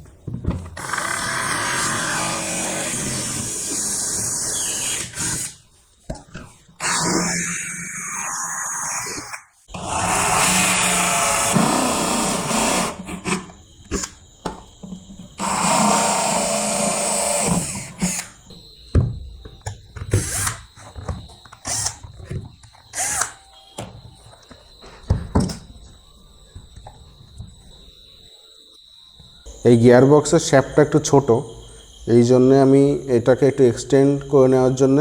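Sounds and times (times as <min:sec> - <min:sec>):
handheld power tool running: 0:00.8 - 0:05.6, 0:09.7 - 0:14.1, 0:15.4 - 0:18.4.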